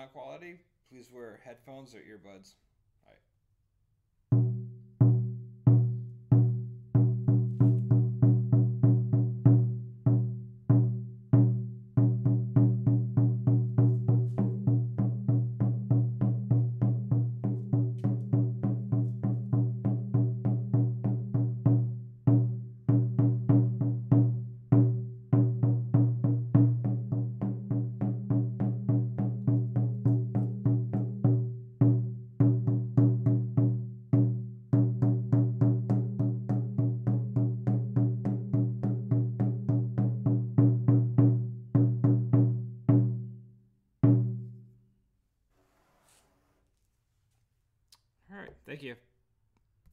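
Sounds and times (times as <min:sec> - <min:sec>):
frame drum struck: 0:12.1 - 0:21.5.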